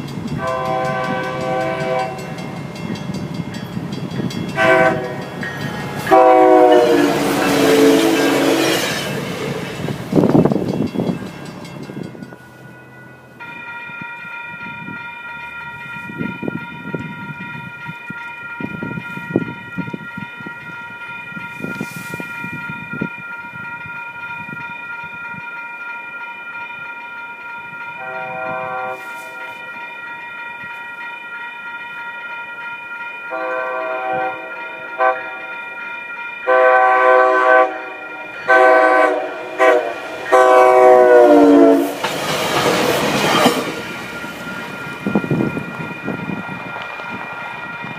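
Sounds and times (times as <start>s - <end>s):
train rumble and rail noise: 0.0s - 47.9s
train horn blasts: 0.4s - 2.6s, 4.5s - 5.4s, 6.0s - 8.9s, 28.0s - 29.6s, 33.3s - 35.5s, 36.4s - 42.0s.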